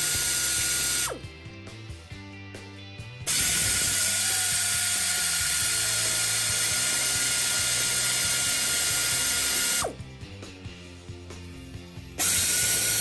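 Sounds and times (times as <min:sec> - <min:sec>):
powered ratchet running: 0:00.0 - 0:01.2, 0:03.3 - 0:10.0, 0:12.2 - 0:13.0.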